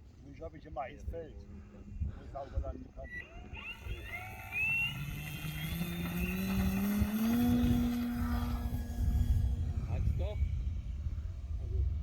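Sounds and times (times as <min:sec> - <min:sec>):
electric motor whining: 0:03.0 - 0:12.0.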